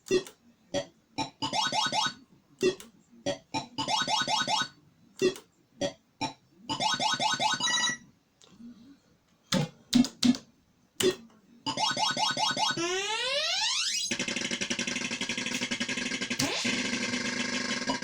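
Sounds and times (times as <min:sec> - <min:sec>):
arcade machine beeping tones: 0:01.3 - 0:02.8, 0:03.8 - 0:05.4, 0:06.7 - 0:08.1, 0:11.7 - 0:18.0.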